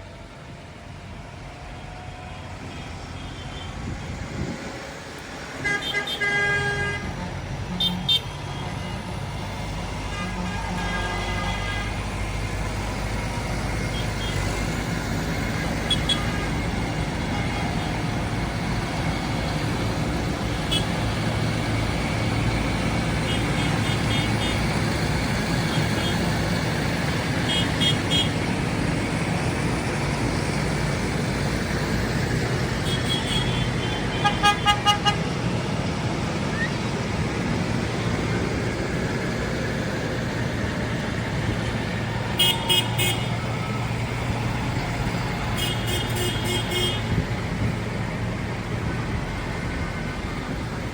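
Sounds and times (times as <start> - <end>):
tractor engines running: 0.0 - 50.9
horn toots: 32.8 - 35.4, 42.3 - 43.5, 45.5 - 47.3.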